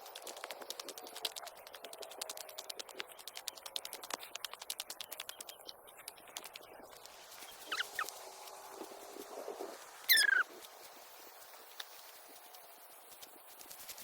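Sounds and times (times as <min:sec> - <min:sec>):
high squeak: 0:10.1 - 0:10.4.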